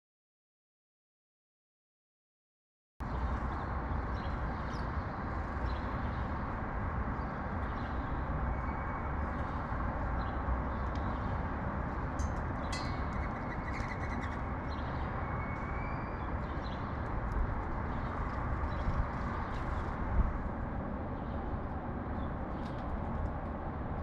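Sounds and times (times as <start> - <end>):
city traffic rumble: 3.0 - 24.0
sparrows chirping: 3.1 - 20.1.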